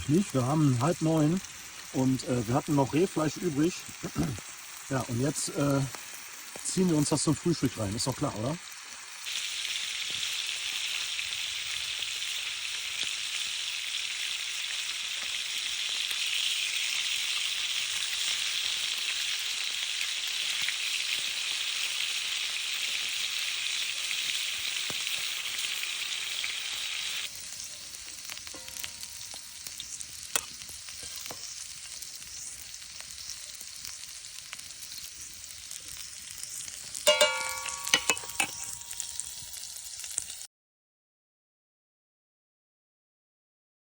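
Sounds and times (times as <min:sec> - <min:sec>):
meat sizzling in a pan: 0:00.0 - 0:40.5
metallic rattle: 0:37.1 - 0:39.0.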